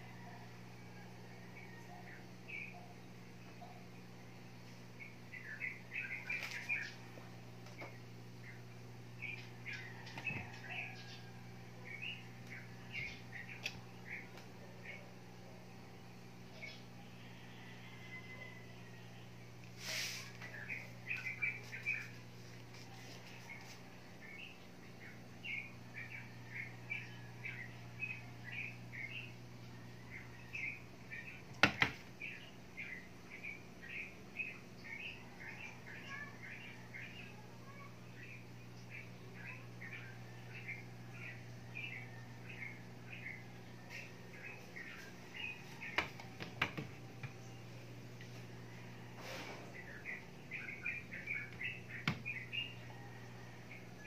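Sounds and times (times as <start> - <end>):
low steady hum: 0.0 - 54.0
small bird chirping: 5.0 - 15.1, 19.8 - 47.8, 49.7 - 53.0.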